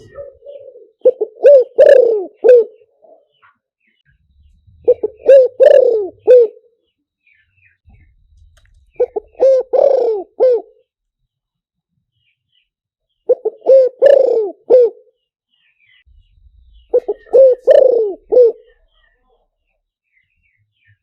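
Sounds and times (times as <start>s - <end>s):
dove cooing: 0.0s - 3.6s, 4.8s - 6.8s, 8.9s - 10.9s, 13.3s - 15.2s, 16.7s - 19.2s.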